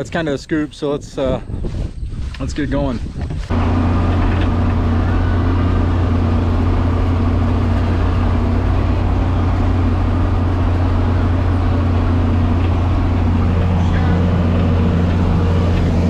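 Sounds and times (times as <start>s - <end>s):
tractor engine running: 3.4s - 16.0s.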